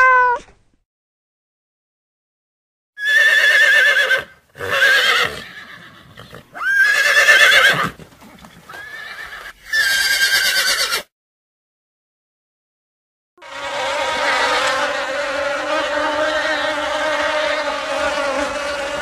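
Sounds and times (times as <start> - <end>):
horse neighing: 3.0 - 11.1.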